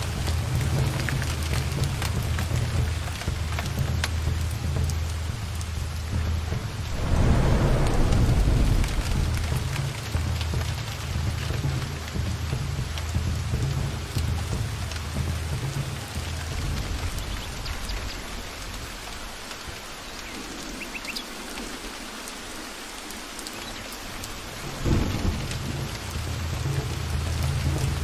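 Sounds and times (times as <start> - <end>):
steady rain in a forest: 0.0 - 28.0
thunder rumbling: 6.3 - 12.5
loud thunder clap: 6.7 - 10.8.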